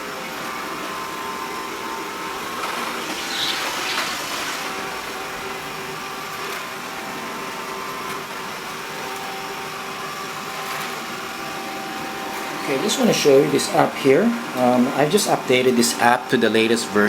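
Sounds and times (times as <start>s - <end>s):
robot vacuum motor whirring: 0.3s - 15.8s.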